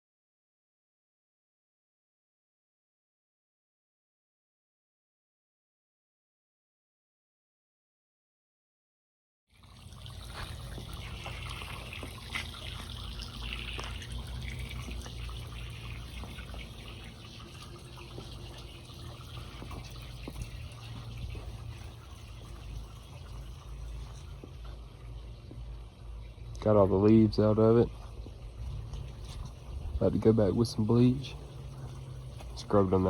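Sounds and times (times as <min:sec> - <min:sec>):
water running and splashing: 0:09.6 - 0:33.0
steady low hum: 0:09.7 - 0:33.0.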